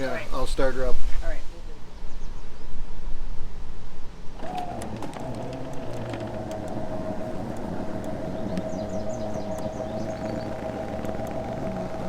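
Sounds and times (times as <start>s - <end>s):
low hum: 4.1s - 12.0s
motor whining: 4.3s - 12.0s.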